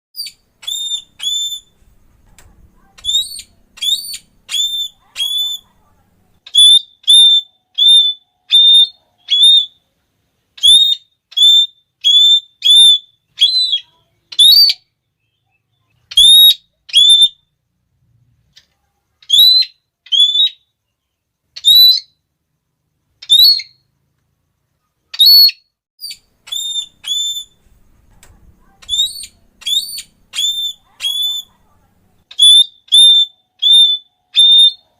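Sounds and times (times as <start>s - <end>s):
parrot shrill calls: 0.2s - 1.8s, 2.8s - 5.7s, 6.5s - 9.8s, 10.6s - 14.9s, 16.1s - 17.5s, 19.2s - 20.7s, 21.6s - 22.2s, 23.2s - 23.8s, 25.1s - 27.6s, 28.6s - 31.6s, 32.3s - 34.9s.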